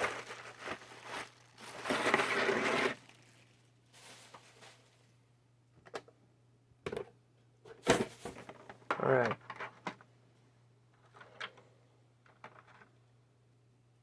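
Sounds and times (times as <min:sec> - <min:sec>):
packaging rustling and crinkling: 0:00.0 - 0:05.1.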